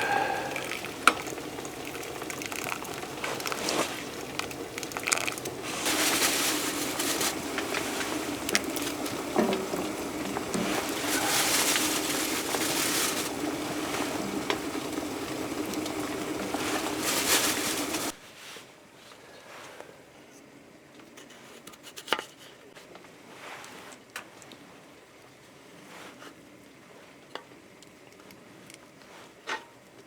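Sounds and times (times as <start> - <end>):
food sizzling in a pan: 0.0 - 18.2.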